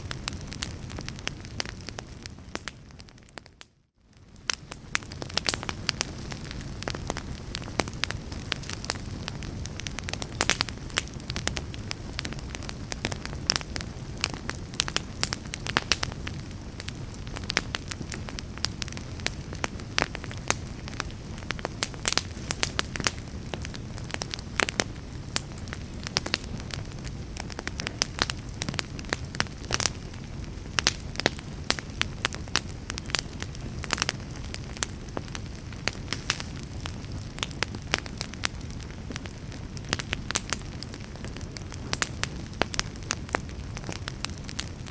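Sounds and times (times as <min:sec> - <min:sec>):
fire crackling and popping: 0:00.0 - 0:44.9
low rumble of flames: 0:00.0 - 0:44.9.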